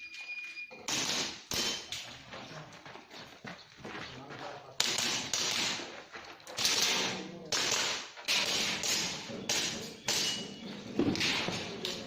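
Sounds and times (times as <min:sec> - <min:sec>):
sharp cracks: 0:04.8 - 0:05.9, 0:06.5 - 0:10.2.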